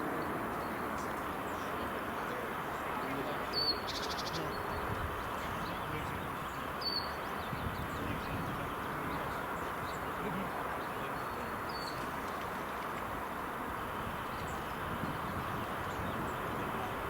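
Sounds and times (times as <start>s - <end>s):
wind noise on microphone: 4.7s - 5.2s, 7.4s - 9.2s, 14.0s - 17.0s.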